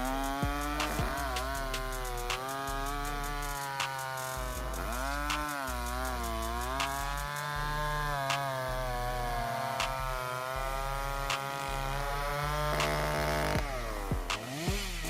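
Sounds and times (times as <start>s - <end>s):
chainsaw cutting wood: 0.0s - 15.0s
sharp clicks: 0.2s - 7.4s, 12.8s - 13.7s.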